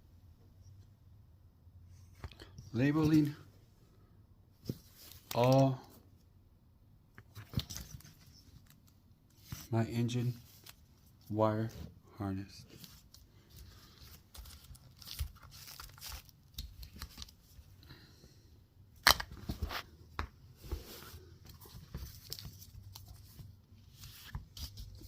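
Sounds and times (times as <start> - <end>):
crinkling and rustling: 7.2 - 11.9, 12.6 - 17.8, 19.2 - 25.0.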